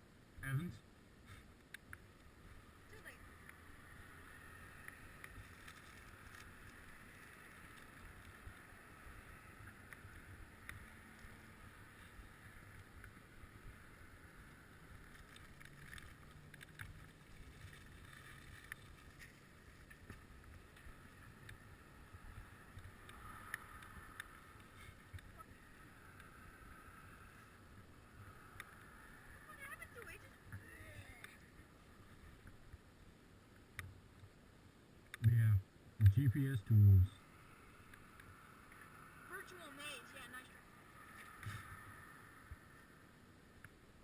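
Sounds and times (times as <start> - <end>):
bicycle rolling hiss: 3.3 - 29.6.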